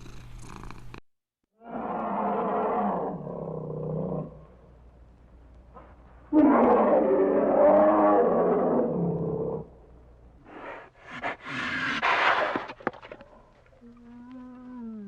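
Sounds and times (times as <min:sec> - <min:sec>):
large animal roaring: 0:01.6 - 0:04.5, 0:06.3 - 0:09.7.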